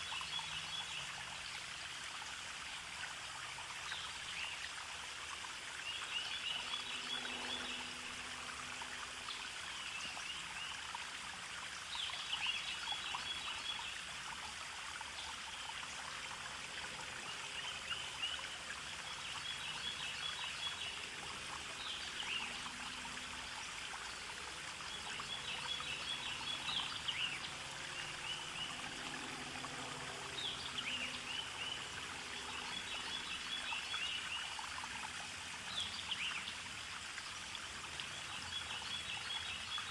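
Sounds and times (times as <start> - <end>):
stream trickling and babbling: 0.0 - 39.9
songbird singing: 24.8 - 28.9, 30.2 - 34.6.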